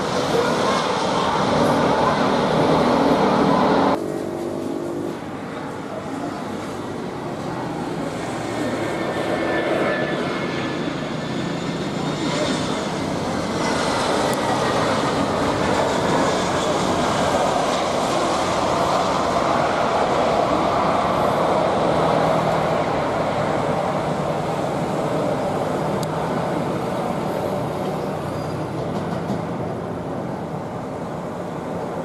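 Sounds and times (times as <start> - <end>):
jet engines roaring: 0.0 - 32.0.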